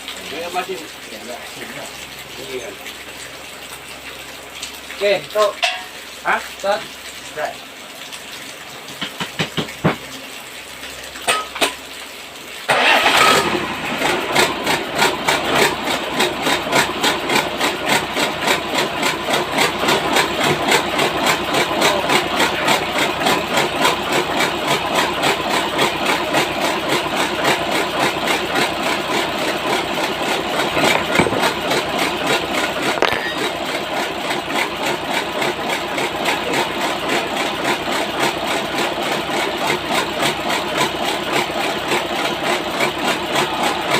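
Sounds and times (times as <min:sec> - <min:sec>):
small engine running: 0:12.7 - 0:43.9.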